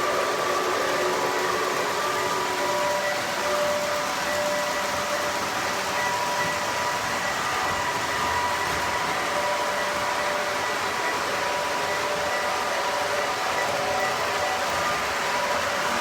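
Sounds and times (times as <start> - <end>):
faint whining tones: 0.0 - 16.0
model train wheels and motors whirring: 0.0 - 16.0.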